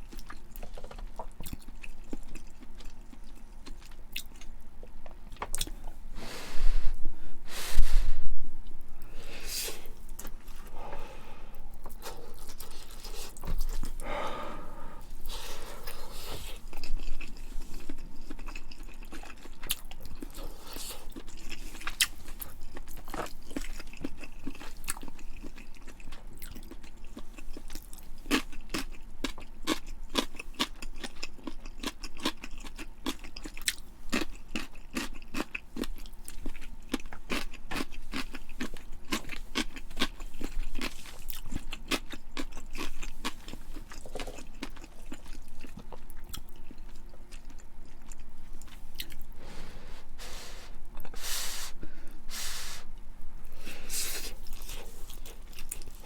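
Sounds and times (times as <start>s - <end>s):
person chewing and biting food: 11.7s - 14.5s, 15.2s - 51.7s, 53.4s - 56.0s.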